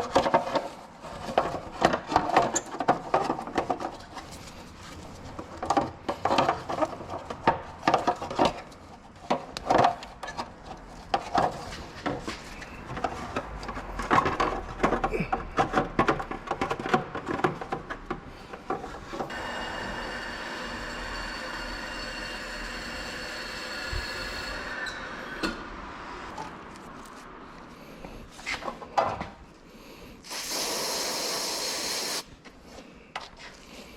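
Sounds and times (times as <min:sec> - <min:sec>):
scraping and knocking on metal: 0:00.0 - 0:19.4
machine whining: 0:19.3 - 0:25.6.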